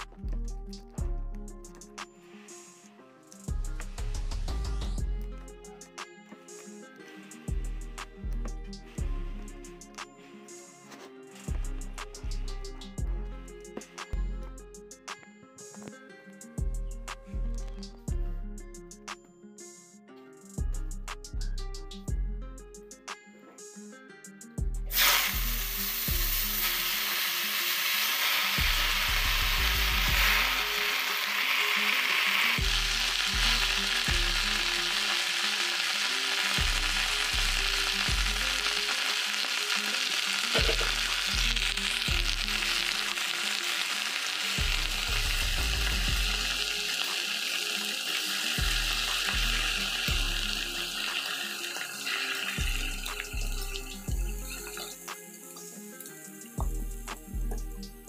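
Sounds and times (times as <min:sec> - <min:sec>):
background music with steady beat: 0:00.0 - 0:58.0
greens sizzling in hot oil: 0:24.9 - 0:56.5.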